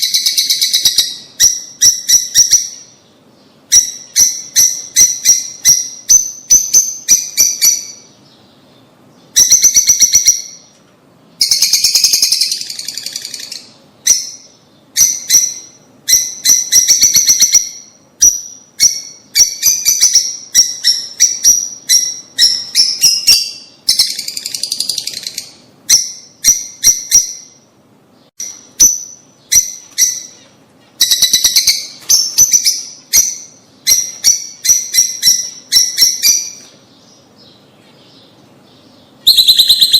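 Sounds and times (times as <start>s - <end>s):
lovebirds chirping: 0.0s - 39.9s
lovebirds chattering: 11.4s - 39.9s.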